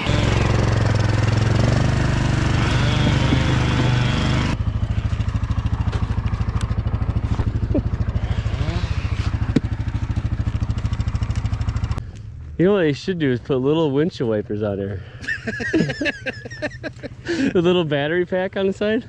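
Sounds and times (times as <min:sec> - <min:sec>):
chainsaw running: 0:00.0 - 0:12.0.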